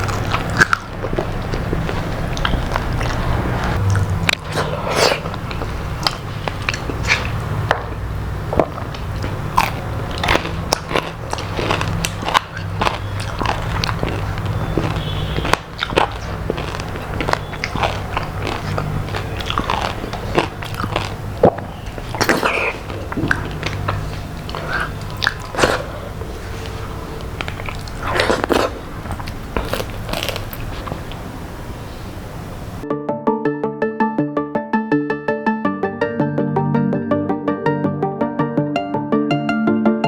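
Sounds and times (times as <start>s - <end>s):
person chewing crunchy food: 0.0s - 32.1s.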